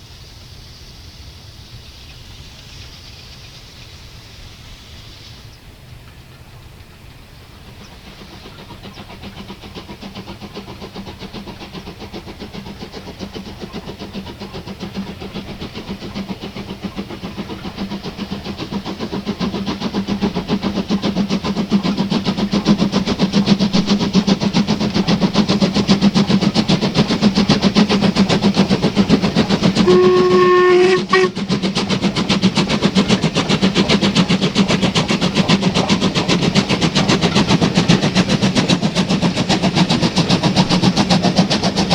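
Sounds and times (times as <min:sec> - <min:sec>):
steam locomotive exhaust beats: 0:00.0 - 0:41.9
steam whistle blast: 0:29.8 - 0:31.4.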